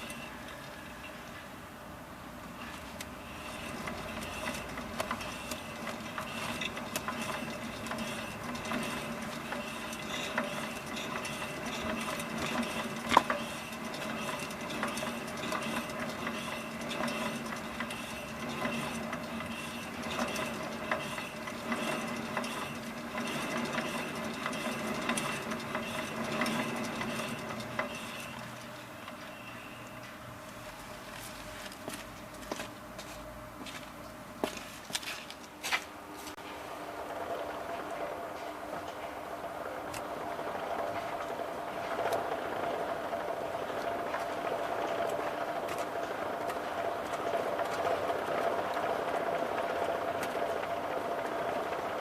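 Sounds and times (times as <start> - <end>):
light ticking and rattling: 3.0 - 29.3.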